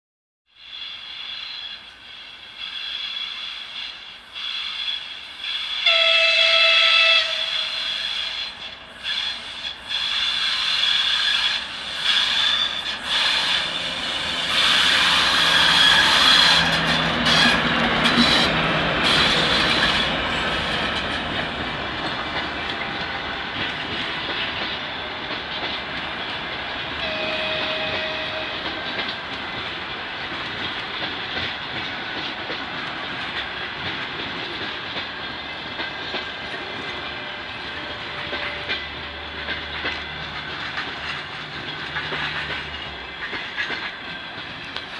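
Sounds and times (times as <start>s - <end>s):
train wheels squealing on rails: 0.5s - 44.9s
train rolling and engine noise: 0.6s - 44.9s
locomotive horn: 5.8s - 8.4s, 26.9s - 29.0s, 36.6s - 39.8s.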